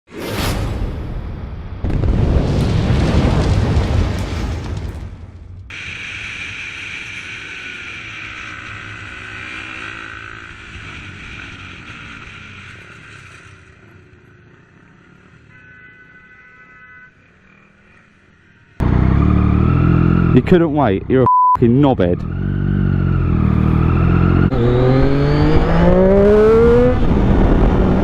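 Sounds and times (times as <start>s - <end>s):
motorcycle engine running: 5.7s - 15.3s
rushing wind: 23.7s - 28.0s.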